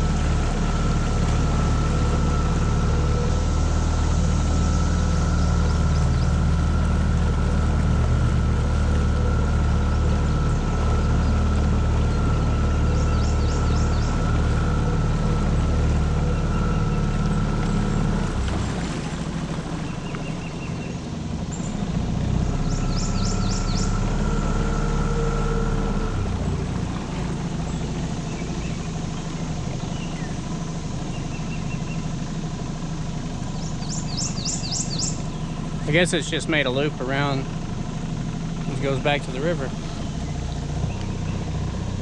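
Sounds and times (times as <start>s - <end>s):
birds chirping: 0.0s - 42.0s
outboard motor running: 0.0s - 42.0s.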